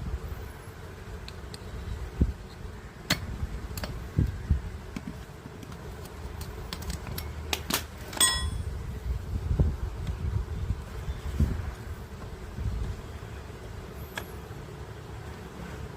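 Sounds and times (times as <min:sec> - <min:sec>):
ringing metallic clink: 0:08.2 - 0:08.7.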